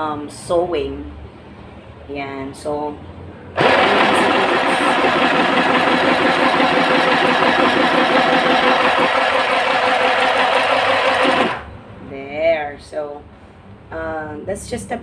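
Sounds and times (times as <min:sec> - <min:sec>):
sewing machine running: 0:03.6 - 0:11.7.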